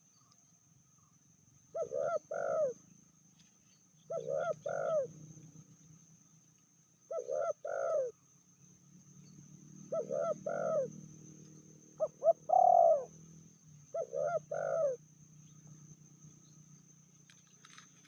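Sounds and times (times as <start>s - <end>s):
dove cooing: 1.7s - 2.8s, 4.1s - 5.2s, 7.1s - 8.1s, 9.9s - 10.9s, 12.0s - 13.1s, 13.9s - 15.0s.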